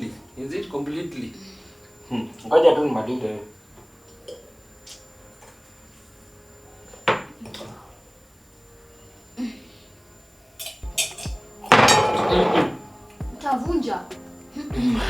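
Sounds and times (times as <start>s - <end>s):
dishes and glass clinking: 10.6s - 12.8s.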